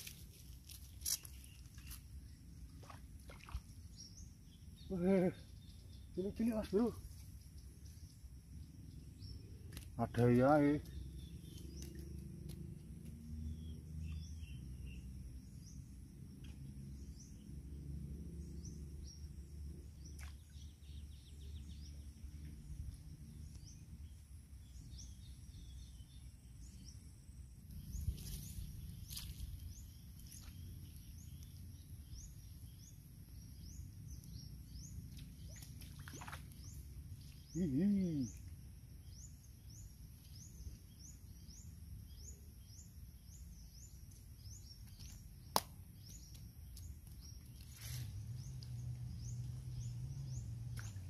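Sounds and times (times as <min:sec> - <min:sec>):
birds chirping: 0:00.9 - 0:17.8, 0:18.4 - 0:51.0
high insect drone: 0:21.8 - 0:50.8
low steady rumble: 0:45.4 - 0:51.0.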